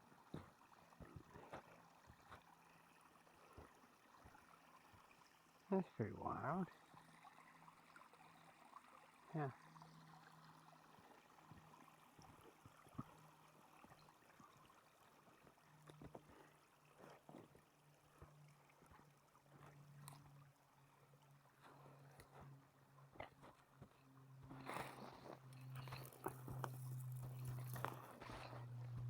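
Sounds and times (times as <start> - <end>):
faint low hum: 0.2 - 29.0
faint crunches and ticks: 10.2 - 29.0.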